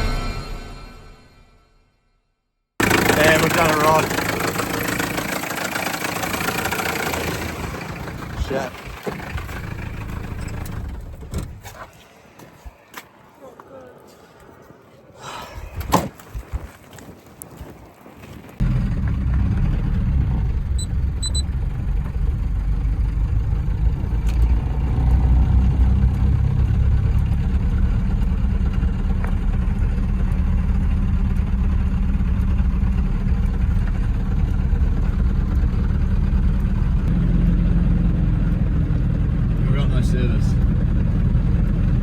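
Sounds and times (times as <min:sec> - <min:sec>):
diesel engine knocking: 0:02.8 - 0:11.6, 0:18.6 - 0:42.0.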